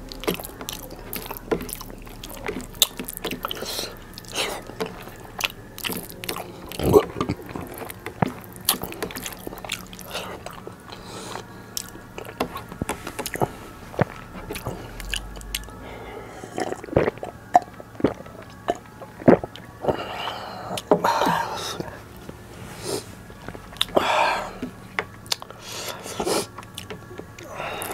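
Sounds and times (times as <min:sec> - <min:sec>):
close chewing with lip smacks: 0:00.0 - 0:15.8, 0:23.3 - 0:24.0, 0:24.6 - 0:27.9
fingers mixing soft rice: 0:00.0 - 0:17.2.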